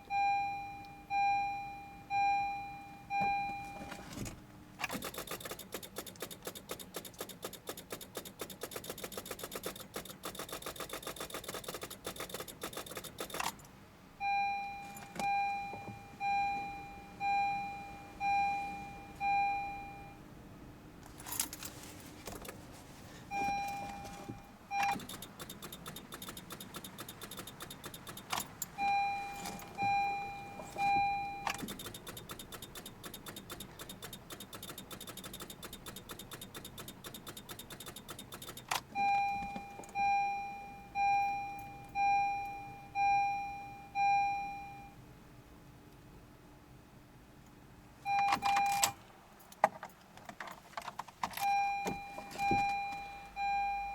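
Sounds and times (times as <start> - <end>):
dashboard warning chime: 0.0 - 4.3, 14.2 - 20.3, 23.3 - 45.0, 48.1 - 49.0, 51.4 - 53.9
starter solenoid clicking rapidly: 4.8 - 13.6, 24.8 - 28.6, 31.5 - 38.9.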